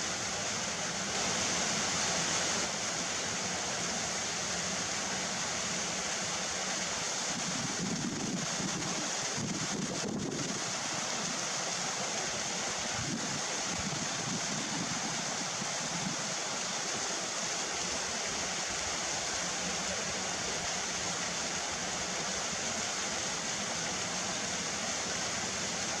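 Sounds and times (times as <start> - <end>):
wind buffeting microphone: 7.5 - 10.6.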